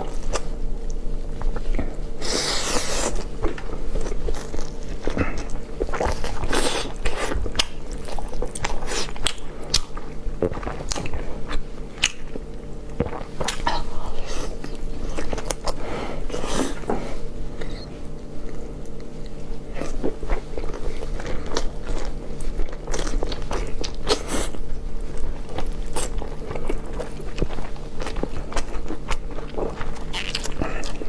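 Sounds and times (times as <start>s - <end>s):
chewing on chicken drumstick: 1.8s - 16.9s, 18.4s - 31.0s.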